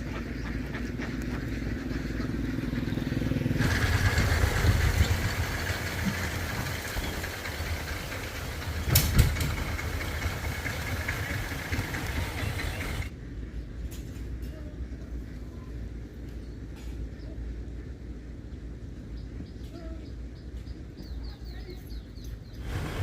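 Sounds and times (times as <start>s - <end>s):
vehicle engine running: 0.0s - 14.2s, 14.8s - 23.0s
sharp clatters: 3.6s - 13.1s.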